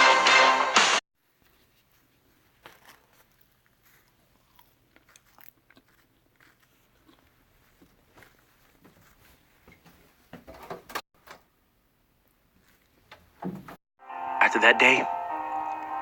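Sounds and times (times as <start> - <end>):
music: 0.0 - 1.0, 14.0 - 16.0
person chewing food: 1.2 - 10.2.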